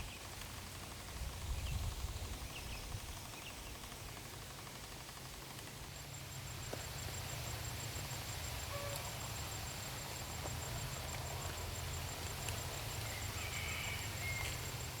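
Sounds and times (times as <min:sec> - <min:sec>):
thin high-pitched whine: 0:05.8 - 0:15.0.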